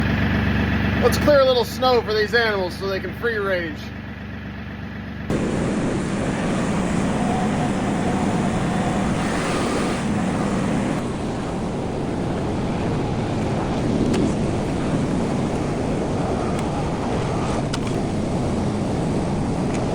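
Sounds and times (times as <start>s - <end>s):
tractor engine droning: 0.0s - 19.9s.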